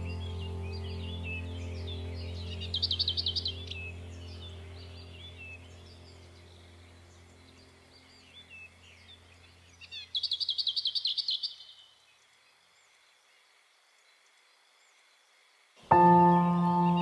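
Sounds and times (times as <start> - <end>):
low held tone: 0.0 - 6.2
rapid bird trill: 0.0 - 7.4
bird chirps: 0.0 - 15.3, 15.9 - 17.0.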